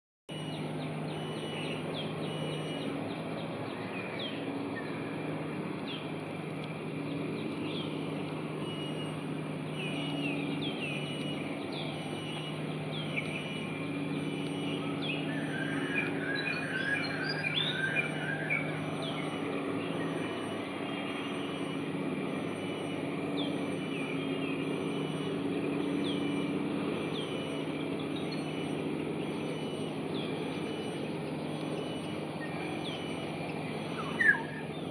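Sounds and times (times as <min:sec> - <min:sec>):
bird chirps: 0:00.3 - 0:06.1, 0:07.0 - 0:34.9
bird calling sharp notes: 0:08.6 - 0:34.9.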